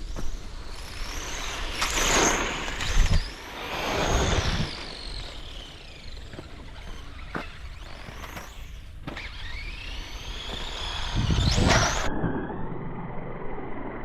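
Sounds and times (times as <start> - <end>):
electric motors whining past: 0.0 - 14.0
tyre noise on dirt: 6.2 - 12.1.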